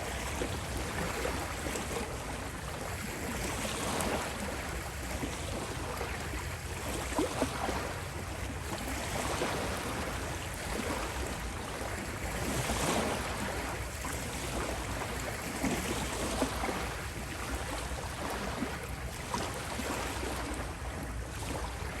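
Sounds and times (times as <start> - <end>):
ocean waves washing onto beach: 0.0 - 22.0.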